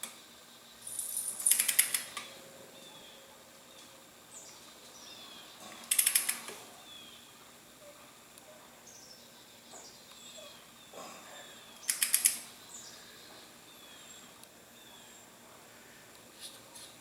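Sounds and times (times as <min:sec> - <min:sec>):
ratchet wrench clicking: 0:00.9 - 0:02.2, 0:05.9 - 0:06.5, 0:11.8 - 0:12.4
faint bird chirps: 0:02.0 - 0:15.4.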